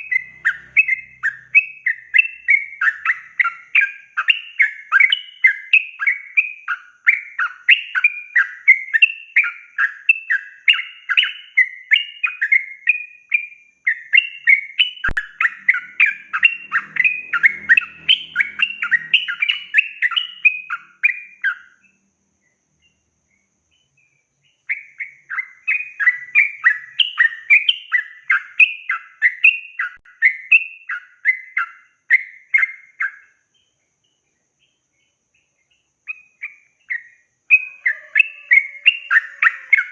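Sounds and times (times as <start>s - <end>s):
bird singing chattering notes: 0.0s - 13.0s, 13.9s - 21.9s, 23.8s - 39.9s.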